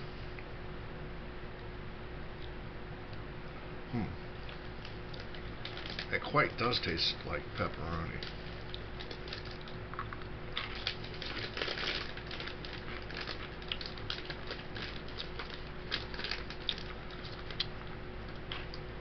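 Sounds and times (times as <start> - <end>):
faint steady hum: 0.0 - 19.0
crunchy crackers being chewed: 4.4 - 7.0, 7.6 - 18.9.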